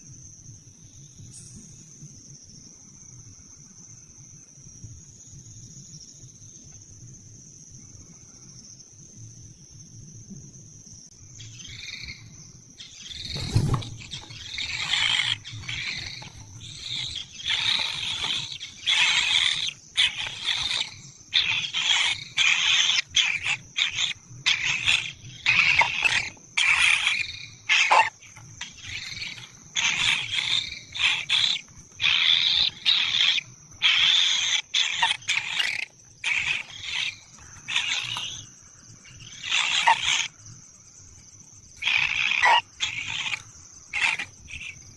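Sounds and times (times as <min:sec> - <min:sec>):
high insect drone: 0:00.0 - 0:44.9
nestlings rasping begging calls: 0:12.8 - 0:40.4, 0:41.8 - 0:44.8.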